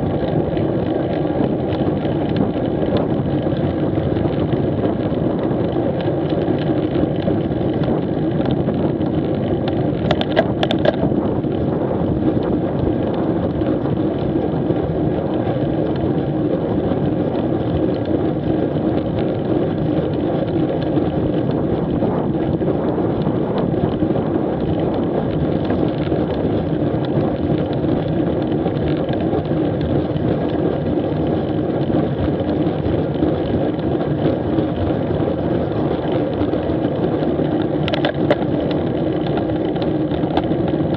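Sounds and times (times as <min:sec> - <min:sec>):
motorbike road noise: 0:00.0 - 0:40.9
wind rush: 0:00.0 - 0:40.9.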